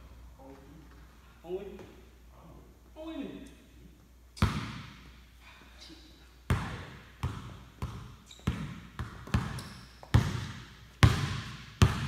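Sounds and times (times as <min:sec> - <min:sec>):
basketball bouncing on wooden floor: 0:06.5 - 0:12.0.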